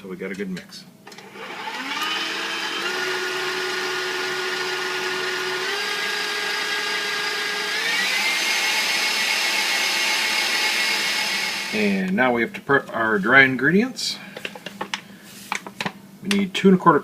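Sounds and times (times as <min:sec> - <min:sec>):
electric mixer motor whine: 0:01.1 - 0:11.9.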